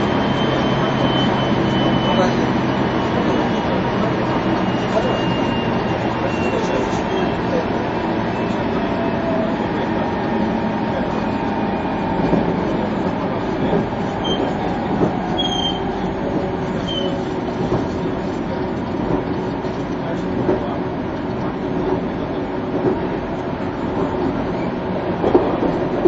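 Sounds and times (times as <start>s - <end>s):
train wheels rumbling on rail: 0.0s - 26.0s
brief high squeaks: 14.2s - 14.6s, 15.3s - 16.0s, 16.8s - 17.2s.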